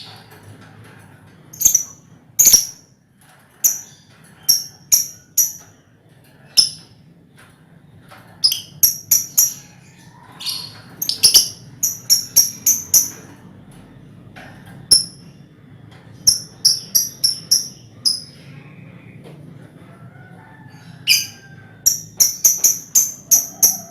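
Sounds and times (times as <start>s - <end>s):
lovebirds chirping: 1.6s - 2.8s, 8.4s - 13.4s, 16.2s - 18.7s.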